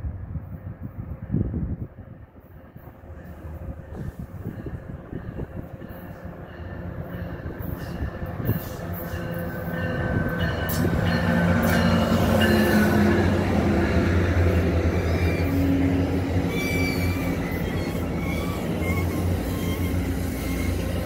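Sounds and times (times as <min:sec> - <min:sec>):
diesel locomotive engine drone: 0:00.0 - 0:21.0
rail rumble: 0:00.0 - 0:21.0
wheel squeals: 0:16.5 - 0:21.0.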